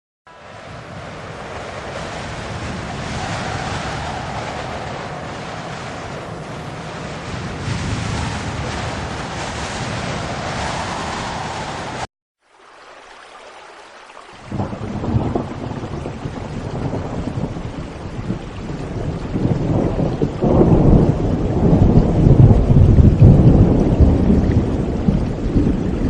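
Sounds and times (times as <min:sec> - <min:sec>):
rushing wind-like noise: 0:00.3 - 0:12.1, 0:14.4 - 0:26.0
low rumble: 0:00.4 - 0:12.1.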